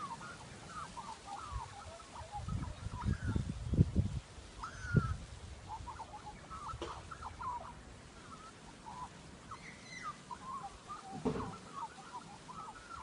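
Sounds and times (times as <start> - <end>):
low thump: 11.2 - 11.6.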